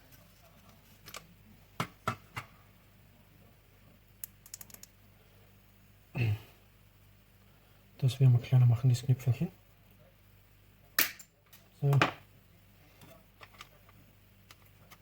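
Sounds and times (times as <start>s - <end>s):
small parts clicking on workbench: 4.2s - 4.9s.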